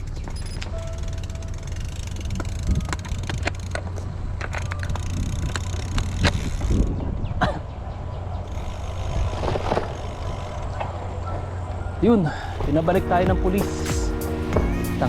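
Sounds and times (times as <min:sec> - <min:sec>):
wind rumble on microphone: 0:02.2 - 0:11.0.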